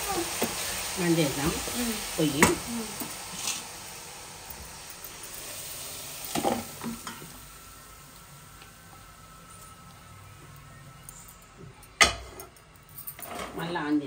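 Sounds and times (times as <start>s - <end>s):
chicken sizzling in hot oil: 0.0s - 10.8s.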